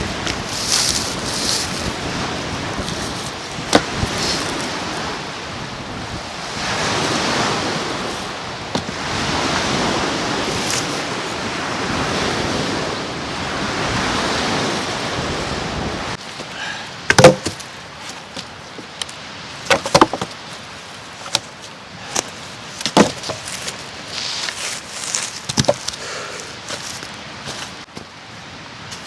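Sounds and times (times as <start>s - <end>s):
wind noise: 0.0s - 16.2s
lake waves washing: 0.0s - 29.0s.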